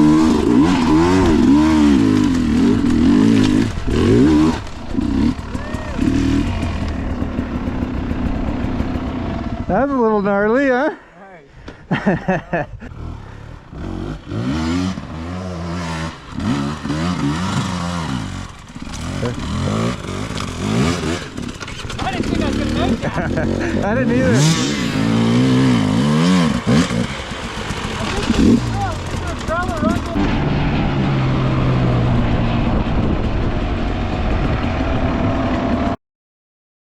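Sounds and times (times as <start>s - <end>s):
dirt bike engine revving: 0.0s - 10.7s, 12.8s - 36.0s
broad rushing noise: 23.7s - 31.4s.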